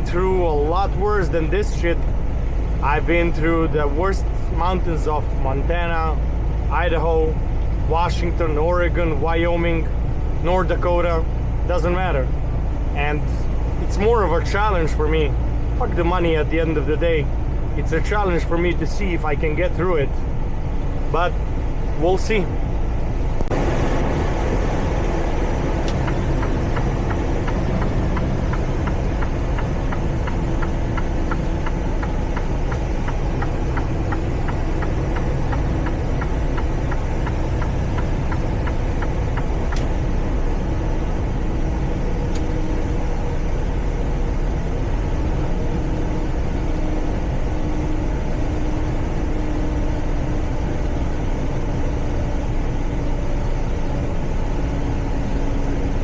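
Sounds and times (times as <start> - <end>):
road rumble: 0.0 - 56.0
truck engine drone: 0.0 - 56.0
fast regular ticking: 24.4 - 40.0.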